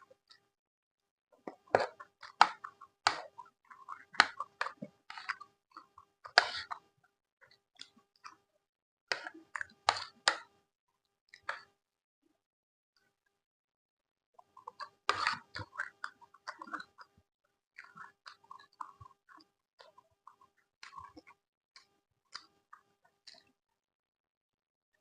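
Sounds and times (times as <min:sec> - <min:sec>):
food chewing crunches: 0:01.5 - 0:06.8, 0:14.5 - 0:17.1, 0:17.8 - 0:23.5
wet mouth clicks: 0:14.6 - 0:17.1, 0:17.8 - 0:23.5.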